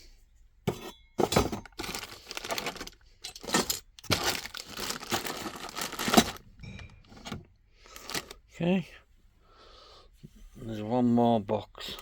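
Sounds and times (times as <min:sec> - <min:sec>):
packaging crinkling and rustling: 0:01.6 - 0:06.4, 0:07.0 - 0:08.4.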